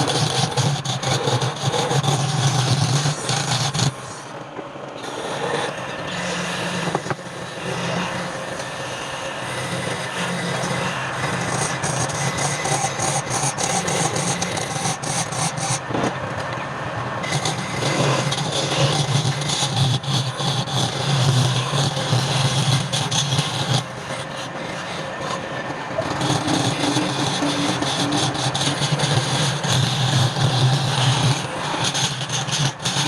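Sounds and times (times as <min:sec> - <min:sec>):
turning tool cutting wood: 0:00.0 - 0:04.4, 0:05.0 - 0:16.2, 0:17.2 - 0:33.0
lathe motor humming: 0:00.0 - 0:33.0.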